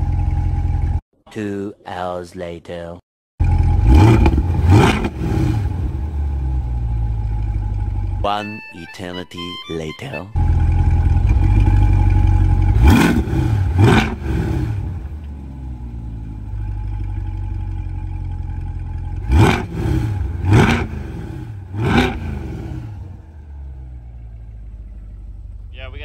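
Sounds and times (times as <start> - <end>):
car engine idling: 0.0 - 1.0, 3.4 - 8.3, 10.4 - 26.0
car engine revving: 3.4 - 8.2, 10.4 - 26.0.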